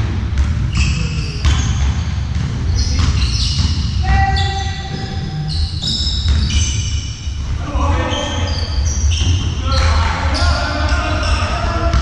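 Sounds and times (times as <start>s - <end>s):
shoes squeaking on court: 0.6s - 7.5s, 8.1s - 12.0s
ball bouncing on floor: 4.5s - 6.8s
voices in background: 7.5s - 12.0s.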